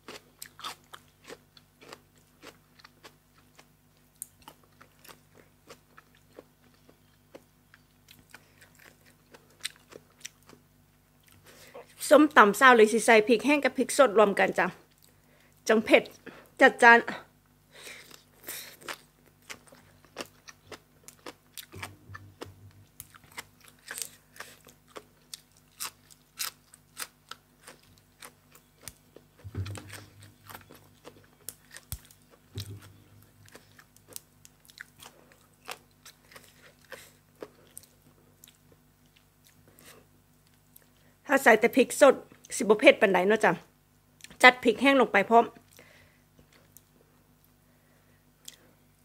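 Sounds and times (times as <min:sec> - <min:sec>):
person chewing crunchy food: 0:00.0 - 0:10.6, 0:17.8 - 0:41.0
soft low thuds: 0:29.4 - 0:30.6, 0:32.6 - 0:33.6.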